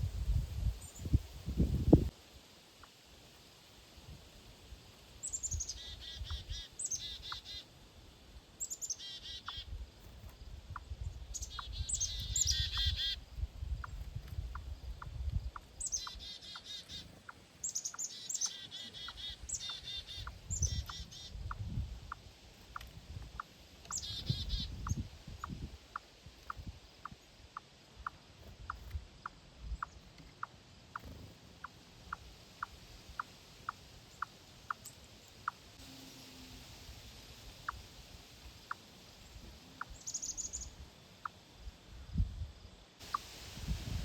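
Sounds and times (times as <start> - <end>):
blackbirds squeaky calls: 5.2 - 7.7, 8.6 - 9.8, 10.7 - 27.2, 38.7 - 41.4.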